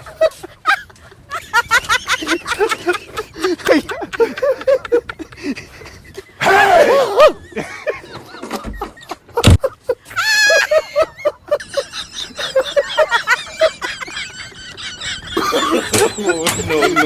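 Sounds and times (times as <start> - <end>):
loud scream: 6.4 - 7.4
people yelping and crying: 6.4 - 9.2, 10.0 - 17.0
sharp thump: 9.4 - 9.6.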